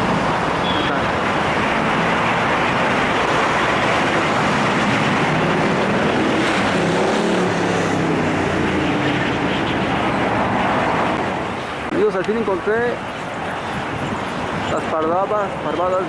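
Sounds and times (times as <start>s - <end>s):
vehicle engine passing by: 0.0s - 11.6s
road traffic noise: 0.0s - 16.0s.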